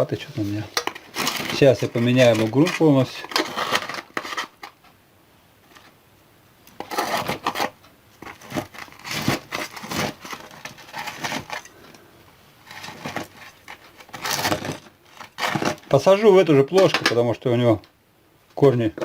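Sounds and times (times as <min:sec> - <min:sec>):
soil scraping and crumbling: 0:00.0 - 0:04.8, 0:06.8 - 0:11.8, 0:12.6 - 0:17.3.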